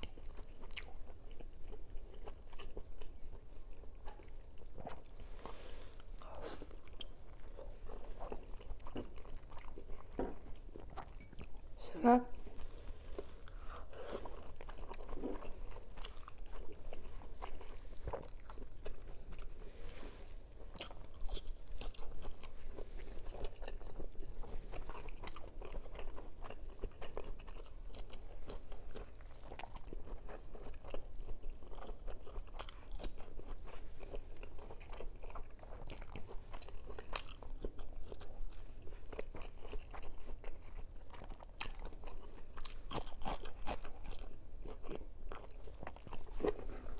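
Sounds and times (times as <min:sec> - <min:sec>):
person crunching food: 0:12.5 - 0:20.0, 0:20.6 - 0:46.9.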